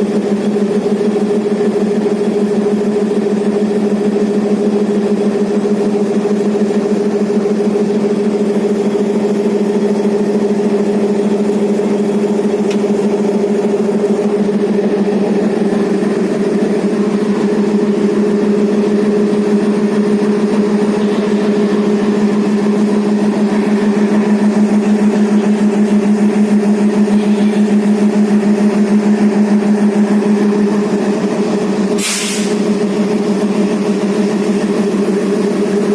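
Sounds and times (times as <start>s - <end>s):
diesel locomotive idling: 0.0s - 35.9s
brief hiss: 32.0s - 32.6s.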